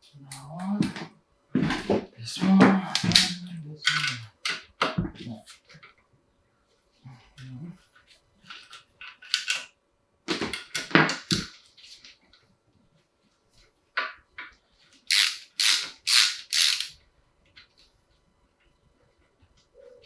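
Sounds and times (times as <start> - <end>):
metal parts clattering: 15.1 - 17.0.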